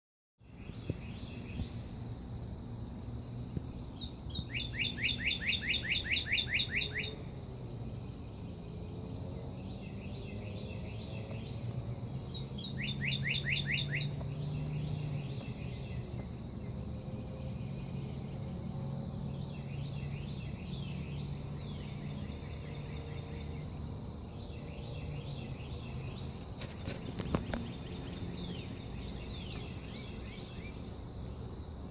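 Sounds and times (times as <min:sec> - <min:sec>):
bird chirps: 0:00.5 - 0:18.5, 0:19.2 - 0:30.9
bird trill: 0:03.6 - 0:07.4, 0:09.6 - 0:16.1.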